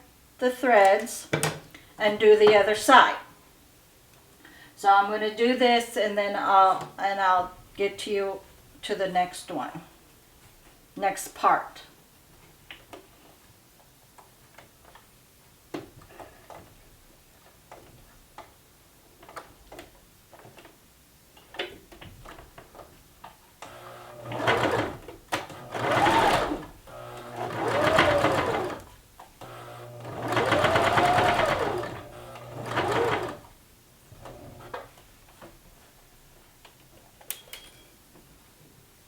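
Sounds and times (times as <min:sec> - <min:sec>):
sewing machine stitching: 0:23.7 - 0:33.5.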